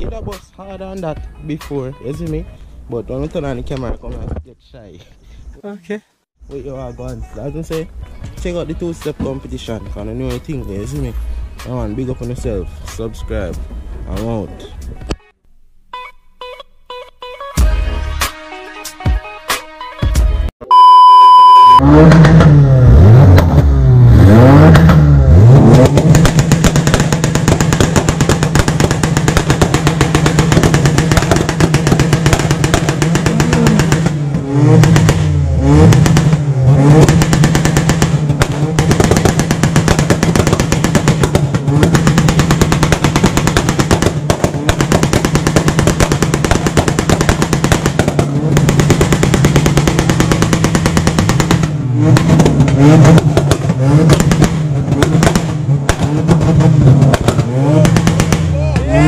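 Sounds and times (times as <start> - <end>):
engines revving: 21.6 - 59.0.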